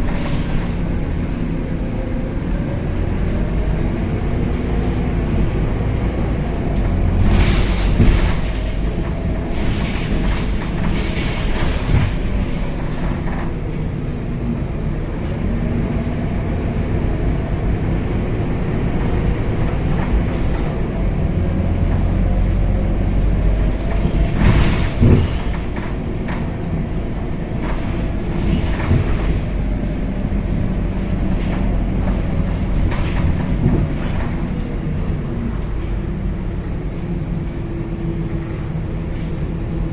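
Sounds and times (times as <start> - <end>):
bus diesel engine rumble and whine: 0.0 - 39.9.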